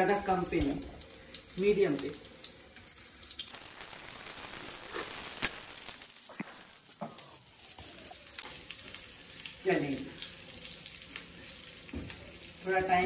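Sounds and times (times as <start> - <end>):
cutlets sizzling in oil: 0.0 - 13.0.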